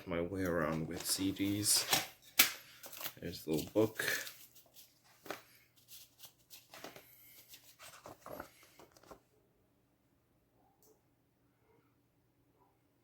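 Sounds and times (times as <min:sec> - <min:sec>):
paper booklet rustling: 0:00.0 - 0:09.3.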